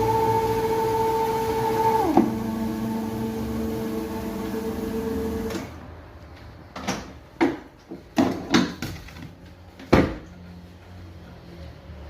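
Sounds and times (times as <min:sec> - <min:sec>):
grinding machine motor humming: 0:00.0 - 0:05.7
sharp knocks and clunks: 0:06.8 - 0:09.2.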